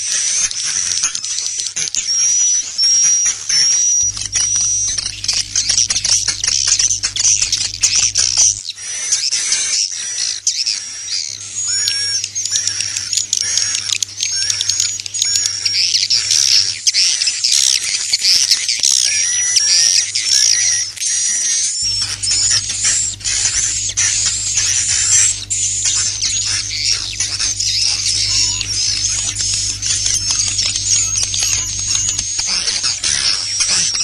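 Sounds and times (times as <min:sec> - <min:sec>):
swiftlets twittering: 0:02.0 - 0:08.6, 0:10.7 - 0:34.0
low hum: 0:04.0 - 0:08.6, 0:21.5 - 0:34.0.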